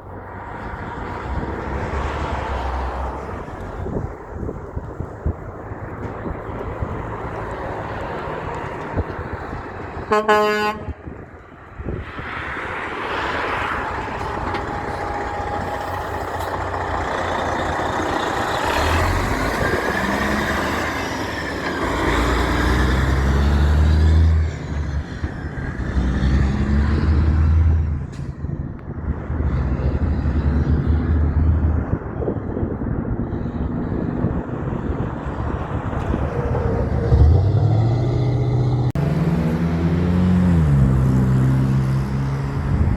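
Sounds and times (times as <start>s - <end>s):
diesel truck passing by: 0.0s - 42.9s
horn toot: 10.1s - 11.0s.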